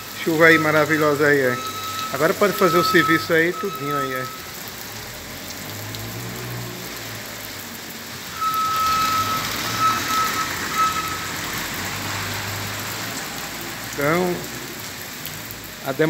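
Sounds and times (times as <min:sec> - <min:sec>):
car passing on wet road: 0:00.0 - 0:16.0
rain on a cobbled street: 0:00.0 - 0:16.0
reversing alarm beeping: 0:00.4 - 0:04.5, 0:08.4 - 0:11.6.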